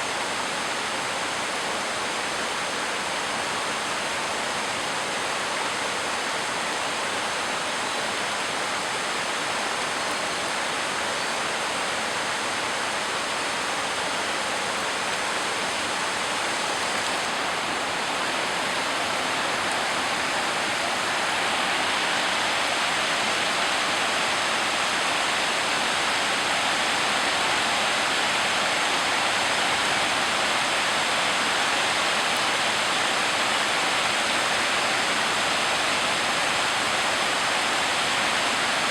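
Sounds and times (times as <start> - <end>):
heavy rain pouring: 13.7 - 38.9.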